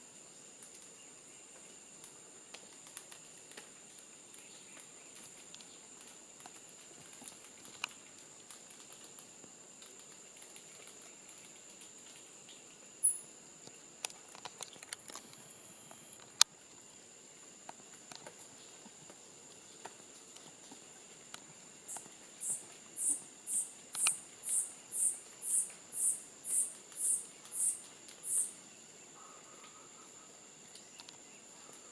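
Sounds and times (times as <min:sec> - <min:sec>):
faint ticks and rustles: 0:00.1 - 0:31.9
sharp click: 0:23.9 - 0:24.2.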